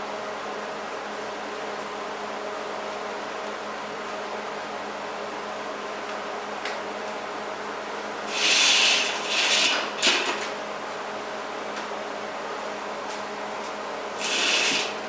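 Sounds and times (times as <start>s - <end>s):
machine hum: 2.2s - 15.0s
welding arc hissing crackle: 8.3s - 10.3s, 14.2s - 15.0s.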